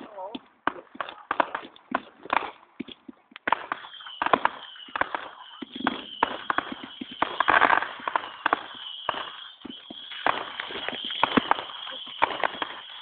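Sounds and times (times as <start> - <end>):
fireworks crackling: 0.0 - 13.0
fireworks hissing burst: 3.7 - 13.0.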